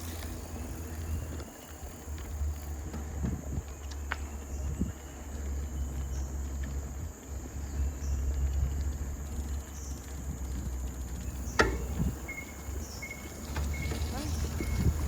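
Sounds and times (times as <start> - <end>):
wind rumble on microphone: 2.1 - 15.0.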